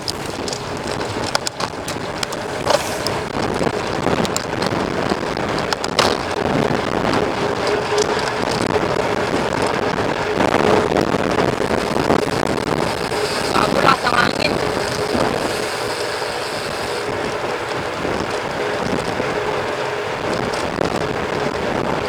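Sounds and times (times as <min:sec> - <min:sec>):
bike clicks and knocks: 0:00.0 - 0:09.9, 0:11.5 - 0:19.2
wind rushing over microphone: 0:00.0 - 0:22.0.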